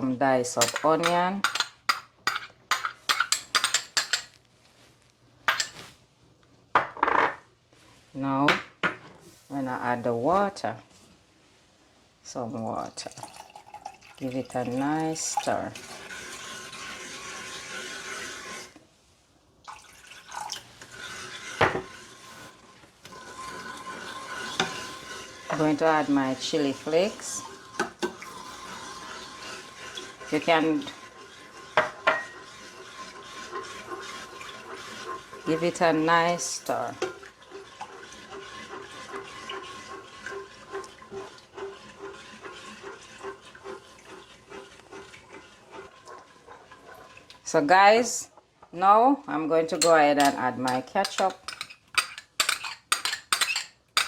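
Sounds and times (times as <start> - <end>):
spoon stirring liquid in pot: 0.6 - 4.4, 13.1 - 18.8, 19.7 - 48.7, 49.3 - 54.0
liquid sloshing: 23.2 - 47.5.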